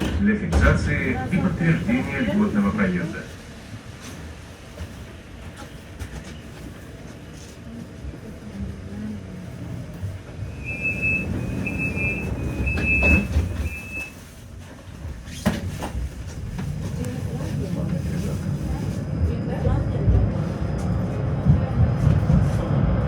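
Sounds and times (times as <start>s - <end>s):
tram rumbling: 0.0s - 23.0s
high-pitched squeals: 10.4s - 14.1s.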